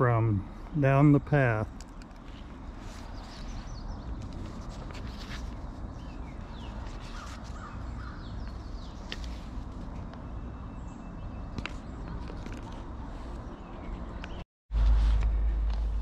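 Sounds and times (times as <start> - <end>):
harsh bird calls: 5.8 - 9.5
steady low rumble: 12.8 - 16.0.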